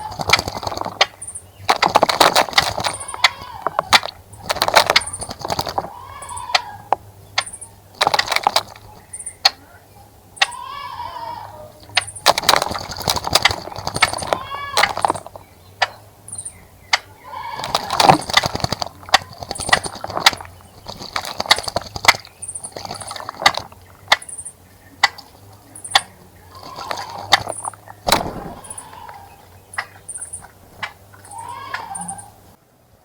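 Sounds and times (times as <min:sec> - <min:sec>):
birds splashing in water: 0:00.0 - 0:09.6, 0:10.4 - 0:16.0, 0:16.8 - 0:32.4
bird calls: 0:00.0 - 0:32.5.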